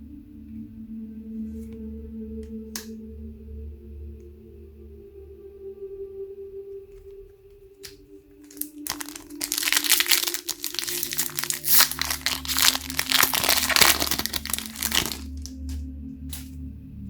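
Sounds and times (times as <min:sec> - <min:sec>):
plastic wrapping crinkling: 0:08.5 - 0:15.8.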